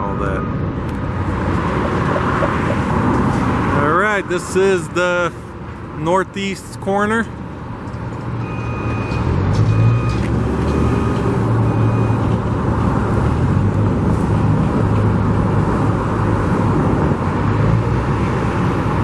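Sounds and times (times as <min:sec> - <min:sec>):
large vehicle engine droning: 0:00.0 - 0:19.0
road traffic noise: 0:00.0 - 0:19.0
reversing beeper: 0:08.4 - 0:12.4.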